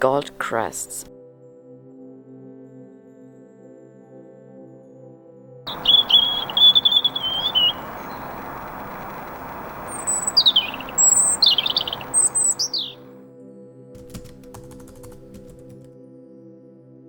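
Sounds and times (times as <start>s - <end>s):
songbirds singing: 5.7s - 13.0s
steady rushing hiss: 5.7s - 13.0s.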